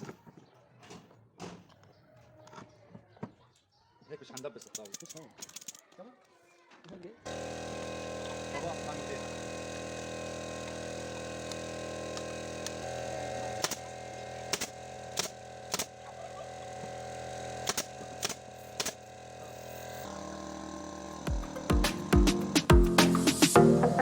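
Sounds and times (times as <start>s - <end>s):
air compressor humming: 7.3s - 24.0s
staple gun firing into wood: 13.5s - 16.0s, 17.6s - 19.1s
music: 21.3s - 24.0s.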